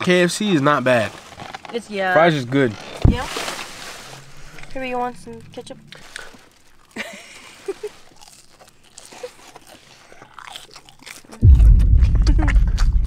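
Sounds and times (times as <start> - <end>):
chewing and crunching fries: 5.2 - 13.0
loud low rumble: 11.4 - 13.0.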